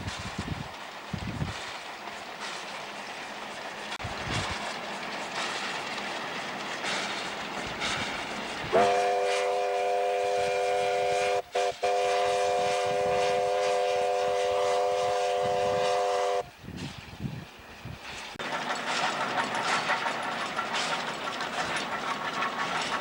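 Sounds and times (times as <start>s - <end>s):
train running noise: 0.0s - 23.0s
steam train whistle blast: 8.7s - 16.5s.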